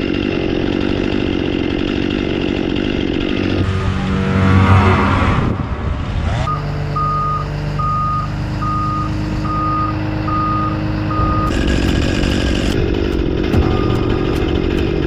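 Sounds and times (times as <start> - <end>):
rough engine-like noise: 0.0 - 15.0
machine engine running: 2.8 - 15.0
reversing alarm beeping: 6.4 - 11.9, 13.6 - 14.6.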